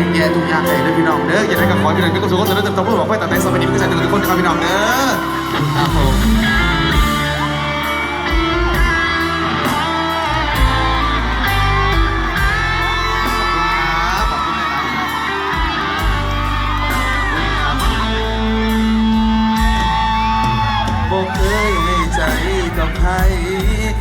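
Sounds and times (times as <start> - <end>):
guitar: 0.0 - 24.0
steady drum beat: 5.0 - 24.0.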